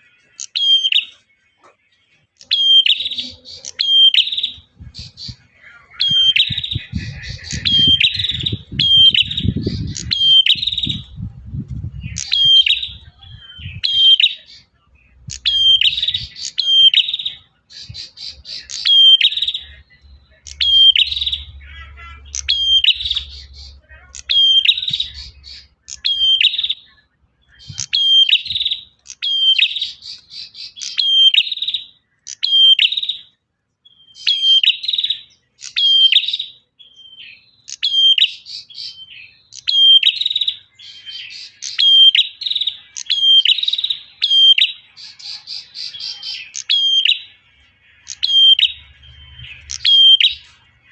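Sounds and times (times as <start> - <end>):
bird singing: 0.0 - 50.9
low rumble: 6.5 - 13.8.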